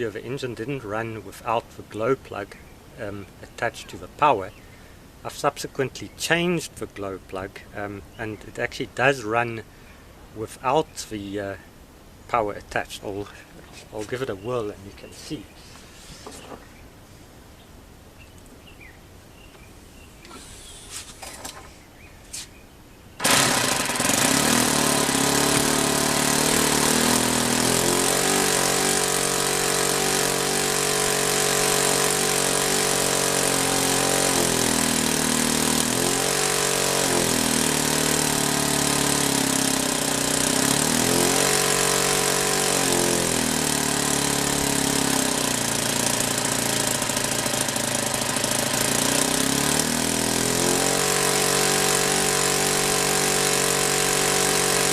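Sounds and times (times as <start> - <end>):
model aircraft engine running: 23.2 - 54.9.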